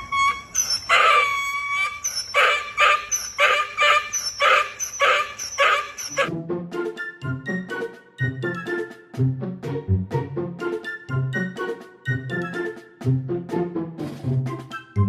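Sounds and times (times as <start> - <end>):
animal short pitched cries: 0.4 - 6.3.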